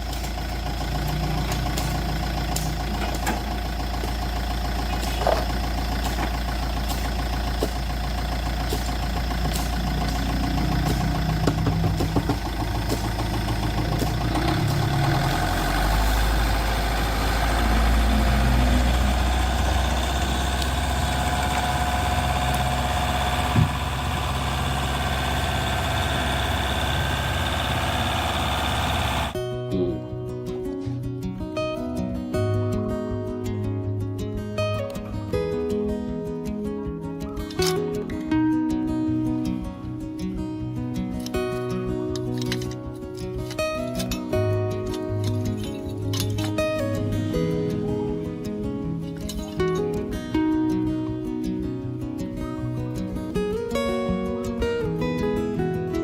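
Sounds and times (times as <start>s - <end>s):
engine running: 0.0s - 29.4s.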